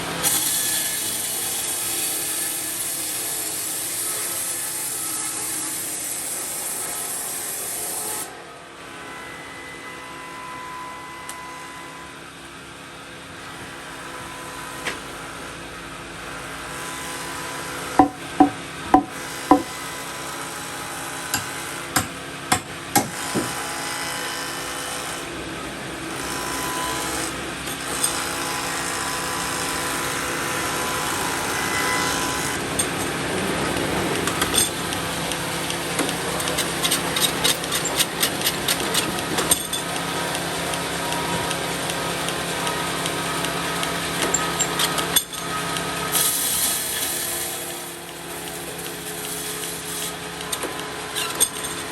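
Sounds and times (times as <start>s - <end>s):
woodshop machinery humming: 0.0s - 51.9s
sharp knocks: 18.0s - 19.8s.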